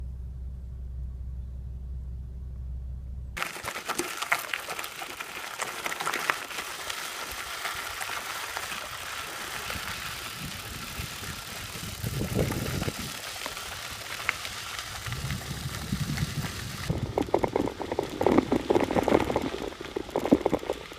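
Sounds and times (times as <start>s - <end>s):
steady low hum: 0.0s - 3.4s
wind and road noise: 1.0s - 20.9s
bicycle rattles and knocks: 3.4s - 20.9s.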